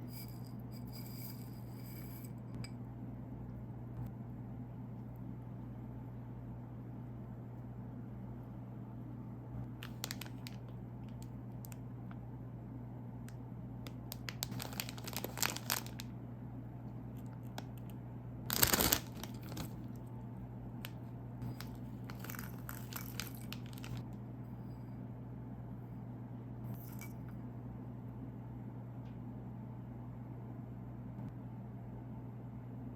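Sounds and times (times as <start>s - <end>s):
faint low hum: 0.0s - 32.9s
plastic wrapper crinkling: 9.8s - 11.4s, 14.1s - 16.0s, 18.5s - 19.9s, 21.5s - 24.0s.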